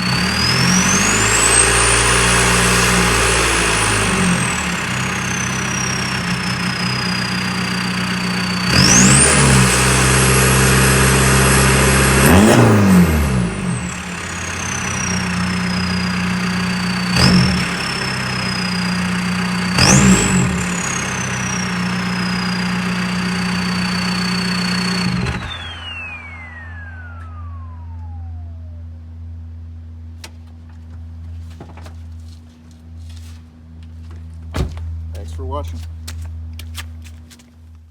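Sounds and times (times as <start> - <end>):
turbo whistling: 0.0 - 10.4, 13.7 - 28.9
diesel engine revving: 0.0 - 29.0.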